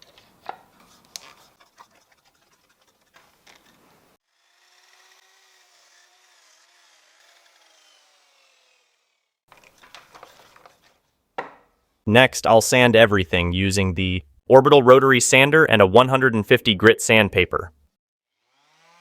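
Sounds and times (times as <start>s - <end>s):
miter saw winding down: 4.5s - 9.3s
wood and tools knocking: 9.5s - 11.7s.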